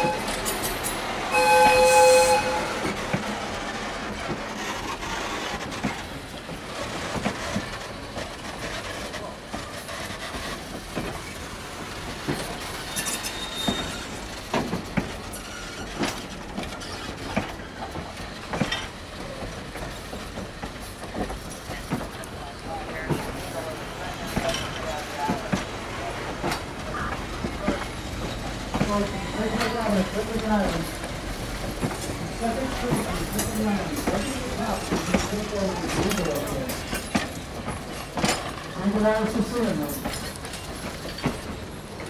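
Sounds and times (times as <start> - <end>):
wheels clacking over rail joints: 0.0 - 42.0
locomotive whistle blast: 1.3 - 3.0
wheel flange squeal: 1.3 - 3.0, 12.8 - 14.2, 15.3 - 16.0.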